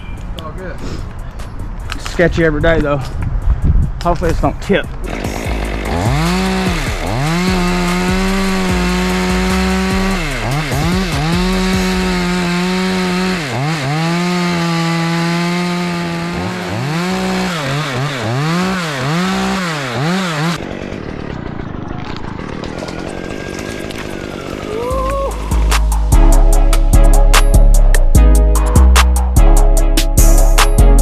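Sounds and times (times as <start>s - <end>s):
chainsaw cutting wood: 4.9s - 27.7s.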